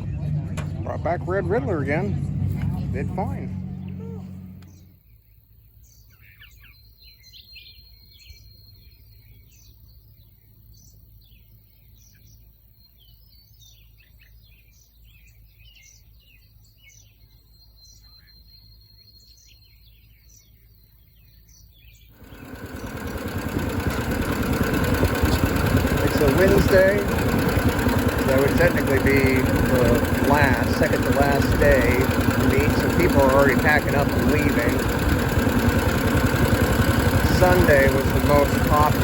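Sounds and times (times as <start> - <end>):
engine running close by: 0.0 - 5.1, 22.2 - 39.0
birds chirping: 0.0 - 39.0.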